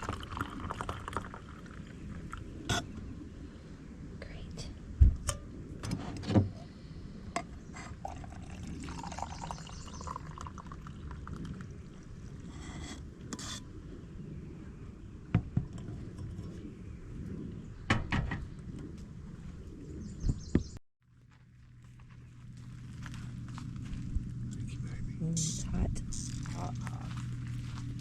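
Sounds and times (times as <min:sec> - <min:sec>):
liquid pouring into a cup: 0:00.0 - 0:02.4, 0:07.9 - 0:12.5.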